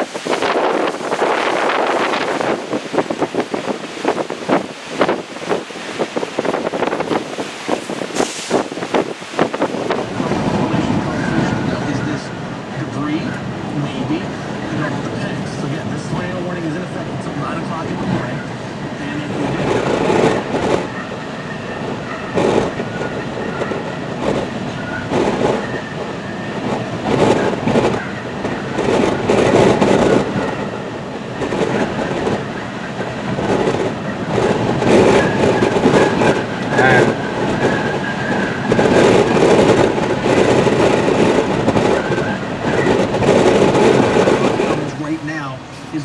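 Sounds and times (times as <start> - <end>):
strong wind on microphone: 0.0 - 46.0.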